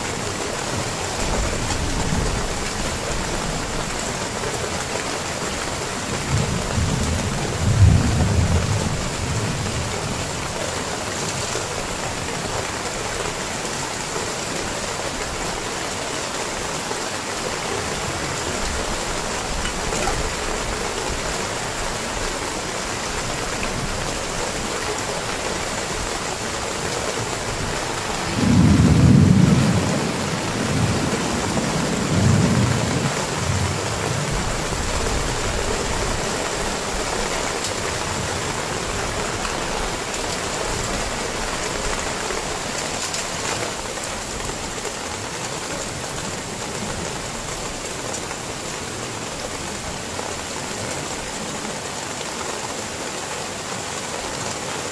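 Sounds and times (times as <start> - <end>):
heavy rain: 0.0 - 54.9
thunder rolling: 6.3 - 9.7, 27.4 - 35.6.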